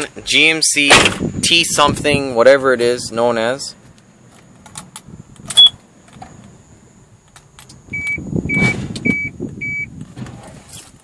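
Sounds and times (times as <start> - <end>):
dashboard warning chime beeping: 5.6 - 5.8, 7.9 - 9.9.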